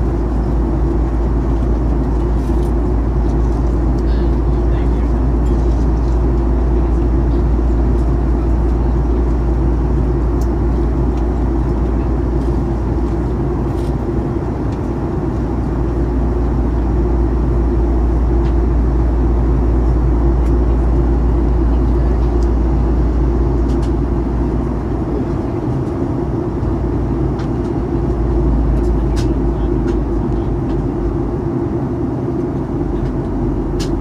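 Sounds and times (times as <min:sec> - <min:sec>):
airplane cabin drone: 0:00.0 - 0:34.0.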